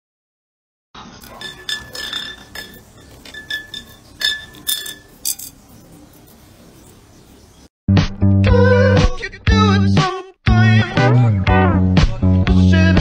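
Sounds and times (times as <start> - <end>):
stick clinking on glass tube: 1.2 - 5.7.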